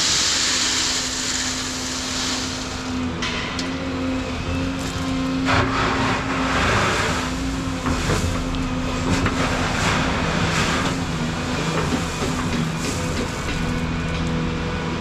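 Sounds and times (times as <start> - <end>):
excavator diesel engine running: 4.0 - 15.0
grinding noise: 4.2 - 13.9.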